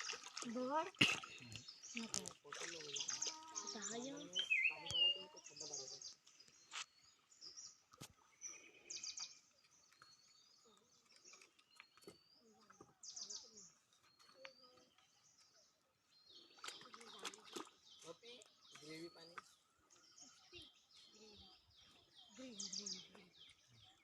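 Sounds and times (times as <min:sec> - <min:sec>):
faint birds chirping: 0:00.0 - 0:24.0
whistled bird calls: 0:02.9 - 0:06.1.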